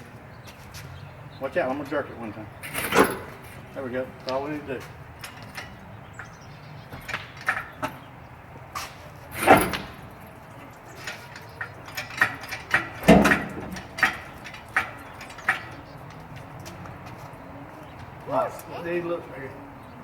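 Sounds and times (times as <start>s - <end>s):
scraping clunks: 0.0s - 20.0s
metal clanks and knocks: 2.6s - 18.1s.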